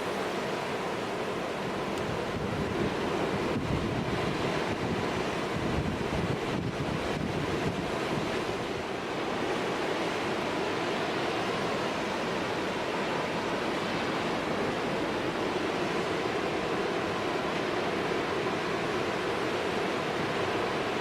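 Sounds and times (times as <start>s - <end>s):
wind buffeting microphone: 2.0s - 8.8s.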